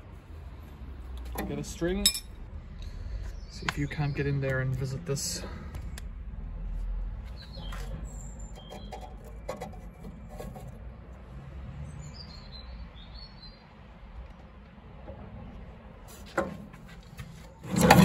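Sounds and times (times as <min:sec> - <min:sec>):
birds chirping: 0:02.7 - 0:06.0, 0:07.2 - 0:09.5.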